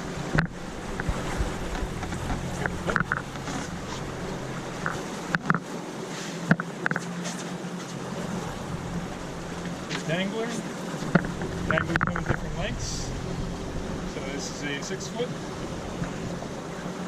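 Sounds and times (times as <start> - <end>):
boat engine humming: 0.0 - 17.0
rigging tackle clicks and knocks: 0.3 - 4.0, 4.7 - 5.7, 11.0 - 12.5.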